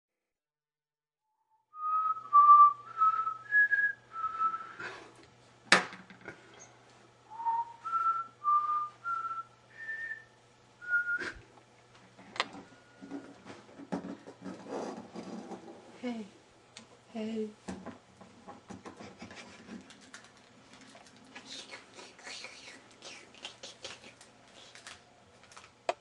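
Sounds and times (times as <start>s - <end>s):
person whistling a slow tune: 1.7s - 5.0s, 7.3s - 11.4s.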